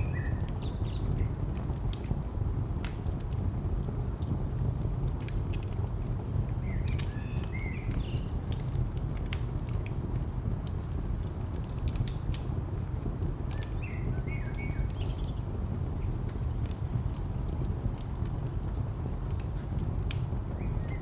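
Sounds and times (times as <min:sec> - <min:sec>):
bird chirping: 0:00.0 - 0:01.2, 0:06.6 - 0:08.5, 0:13.6 - 0:15.4
distant traffic rumble: 0:00.0 - 0:21.0
wood fire crackling: 0:00.0 - 0:21.0.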